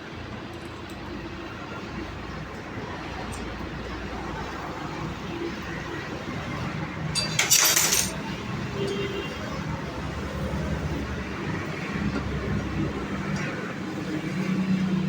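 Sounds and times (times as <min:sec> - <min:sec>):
small metal parts jangling: 0:07.2 - 0:08.2.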